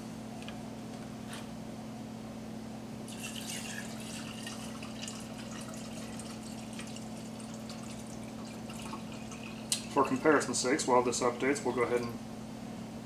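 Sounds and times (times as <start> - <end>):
steady low hum: 0.0 - 13.0
water trickling and dripping: 3.1 - 10.3.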